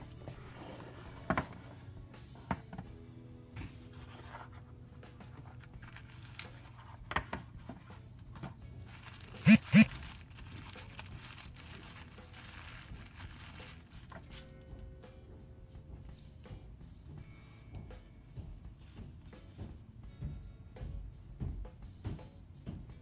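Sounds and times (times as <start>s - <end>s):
packaging rustling and crinkling: 5.7s - 7.0s, 8.8s - 14.4s.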